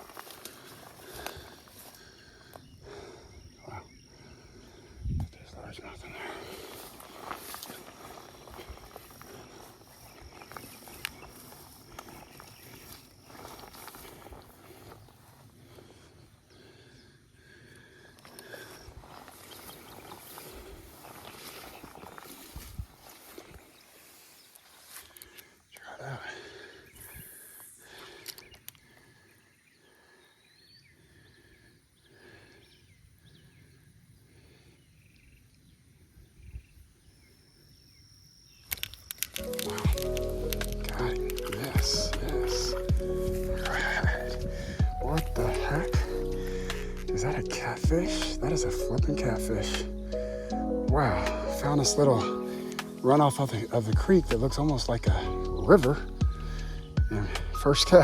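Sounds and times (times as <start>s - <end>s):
insect high-pitched drone: 0.1s - 15.6s, 36.6s - 58.0s
sharp clicks: 38.6s - 43.0s.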